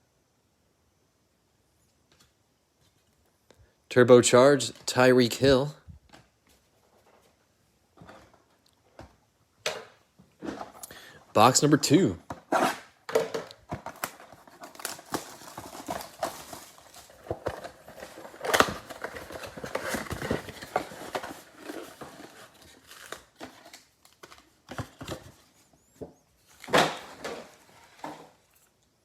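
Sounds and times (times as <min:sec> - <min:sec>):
plastic wrap crinkling and tearing: 0:13.8 - 0:24.6.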